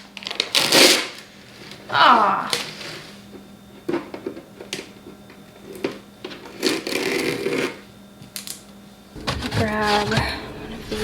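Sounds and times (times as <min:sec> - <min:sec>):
rustling clatter: 0:09.2 - 0:11.0.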